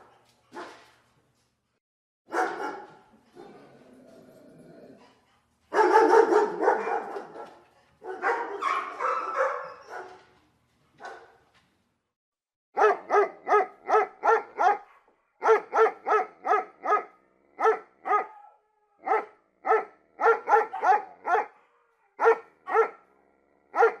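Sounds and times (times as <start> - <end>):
dog barking: 0.0 - 0.8, 2.3 - 3.1, 5.7 - 10.2, 11.0 - 11.4, 12.8 - 23.1, 23.7 - 24.0.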